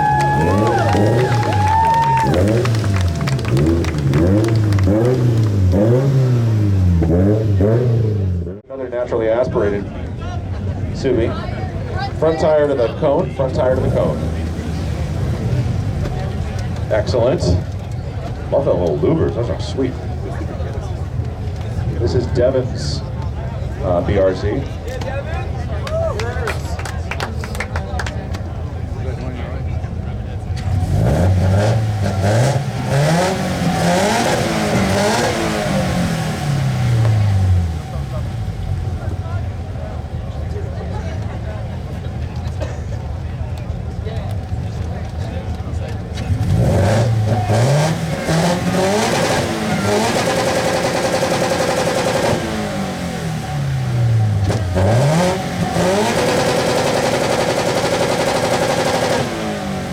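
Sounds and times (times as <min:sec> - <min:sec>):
car engine revving: 0:00.0 - 0:08.6, 0:10.2 - 0:59.9.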